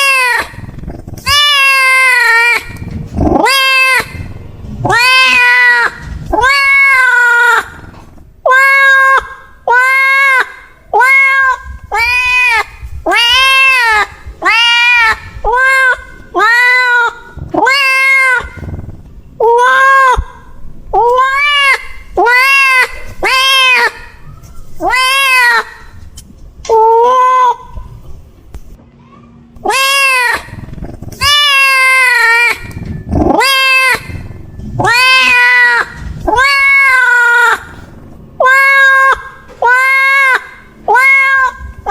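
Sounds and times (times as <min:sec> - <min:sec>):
cat meowing: 0:00.0 - 0:26.0, 0:29.0 - 0:41.9.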